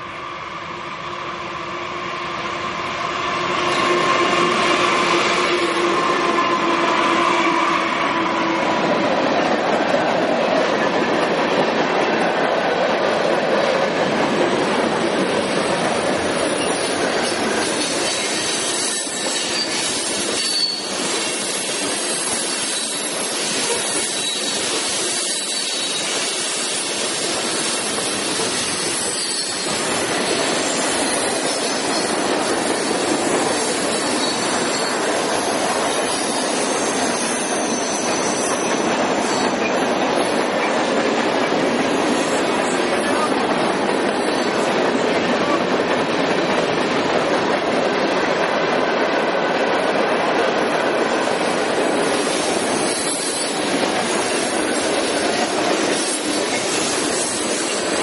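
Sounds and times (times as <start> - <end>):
steel wheels rushing on rail: 0.0 - 58.0
wheel flange squeal: 17.8 - 27.0, 27.7 - 35.5, 36.1 - 39.8.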